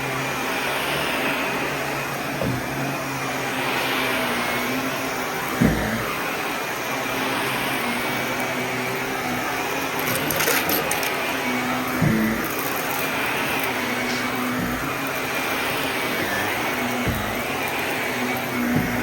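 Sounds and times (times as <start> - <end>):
vacuum cleaner humming: 0.0 - 19.0
crackling rattle: 9.8 - 19.0
dull thumps: 9.9 - 19.0.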